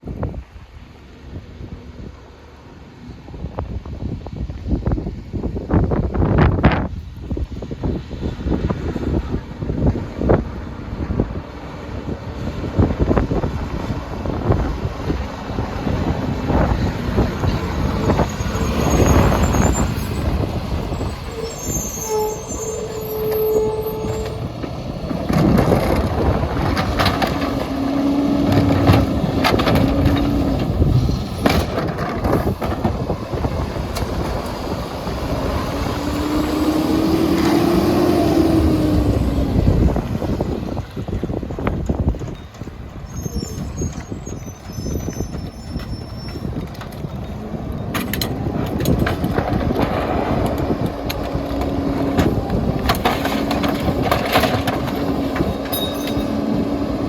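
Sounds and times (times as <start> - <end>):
garbage truck diesel engine running: 9.2 - 57.0.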